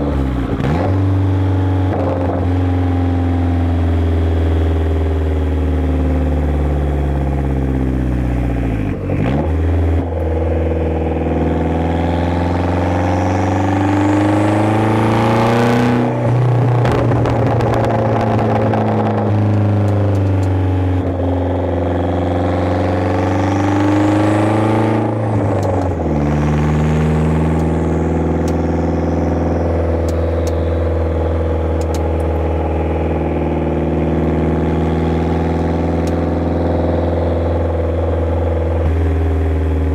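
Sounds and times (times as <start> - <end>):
loud car engine revving: 0.0 - 39.9.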